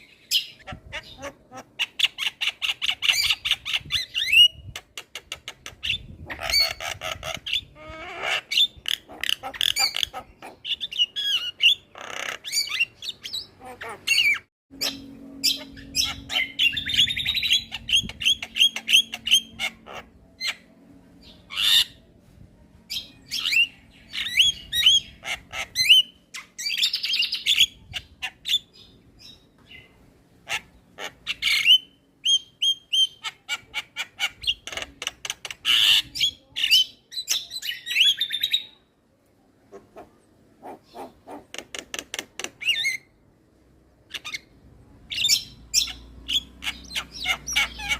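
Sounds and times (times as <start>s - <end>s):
mynas singing and squawking: 45.1s - 47.9s.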